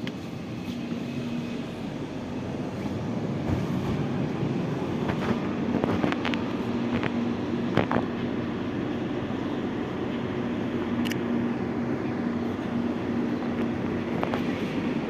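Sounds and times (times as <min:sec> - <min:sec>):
train car rumble: 0:00.0 - 0:15.0.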